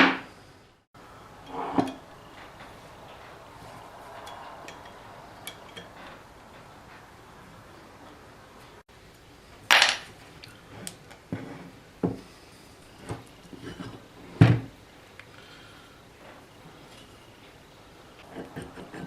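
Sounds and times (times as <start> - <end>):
metal tools clanking on workbench: 1.4 - 6.7.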